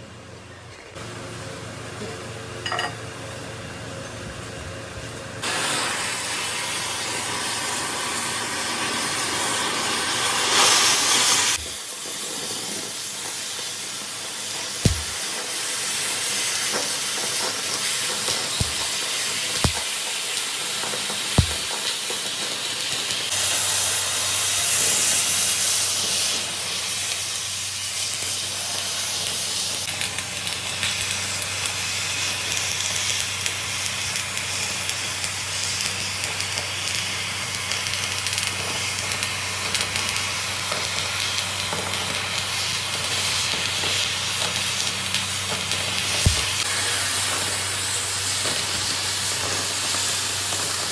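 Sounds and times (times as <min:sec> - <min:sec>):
metalworking machinery hissing: 0:14.8 - 0:15.2, 0:18.3 - 0:20.1, 0:40.5 - 0:50.9
low thuds: 0:14.9 - 0:15.2, 0:18.6 - 0:19.0, 0:19.6 - 0:19.8, 0:21.4 - 0:21.7.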